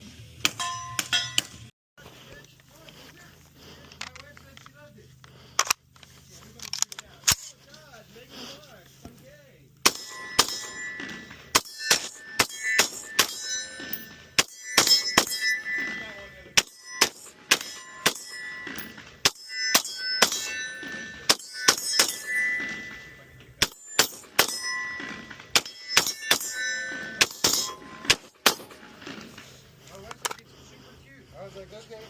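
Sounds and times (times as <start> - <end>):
steel targets ringing: 0.4 - 1.7, 9.8 - 29.6
gunshots: 9.8 - 20.7, 23.6 - 29.1.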